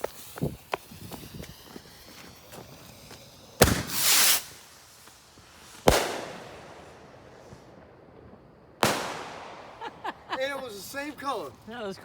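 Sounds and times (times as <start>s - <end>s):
loud hissing crackle: 0.0s - 12.0s
fireworks bang: 0.9s - 4.6s, 5.8s - 6.8s, 8.8s - 10.2s.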